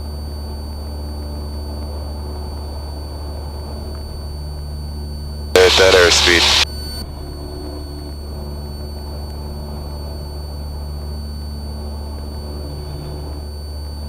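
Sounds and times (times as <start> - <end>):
airplane engine and propeller droning: 5.6 - 6.6.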